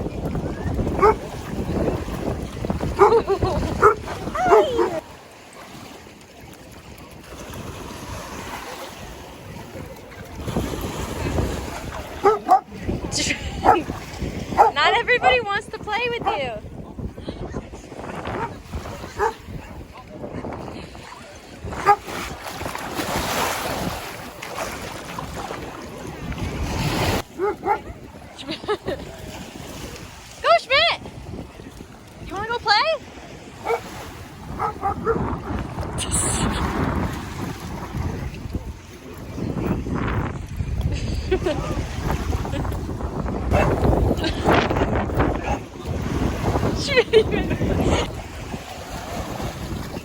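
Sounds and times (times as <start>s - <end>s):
wind noise: 0.0s - 5.1s, 7.2s - 50.0s
ocean waves breaking: 0.0s - 50.0s
surf: 0.0s - 50.0s
dog barking and yipping: 1.0s - 1.2s, 3.0s - 5.0s, 12.2s - 12.7s, 13.6s - 13.9s, 14.6s - 14.8s, 19.2s - 19.4s, 21.8s - 22.0s, 27.4s - 27.9s, 33.6s - 33.9s, 34.6s - 35.2s.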